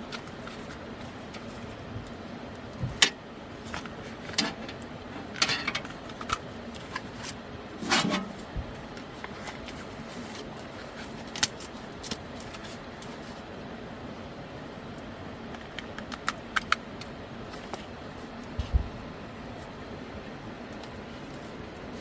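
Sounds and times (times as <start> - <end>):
steady low hum: 0.0 - 22.0
objects clattering: 4.3 - 6.0, 7.8 - 8.5.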